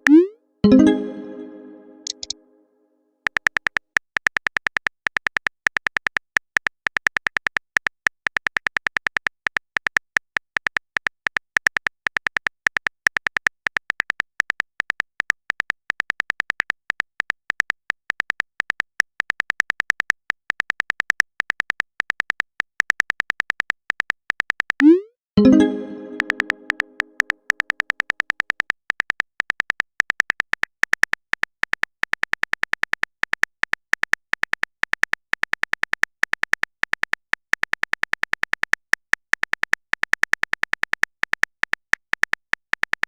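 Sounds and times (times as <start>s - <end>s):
keyboard typing clicks: 0.0s - 2.4s, 22.1s - 28.6s.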